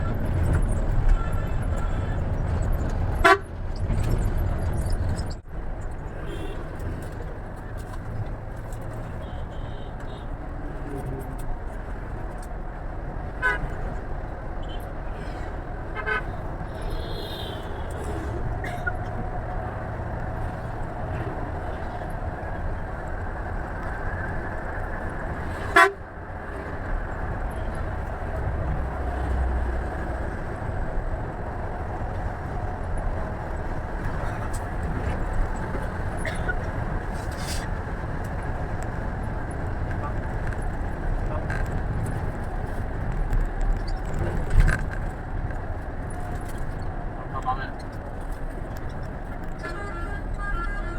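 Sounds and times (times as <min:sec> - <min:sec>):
bus engine rumble: 0:00.0 - 0:50.9
bus horn toots: 0:00.8 - 0:03.6, 0:06.2 - 0:06.8, 0:09.2 - 0:10.4, 0:13.4 - 0:14.0, 0:15.9 - 0:19.0, 0:25.5 - 0:26.2, 0:49.5 - 0:50.9.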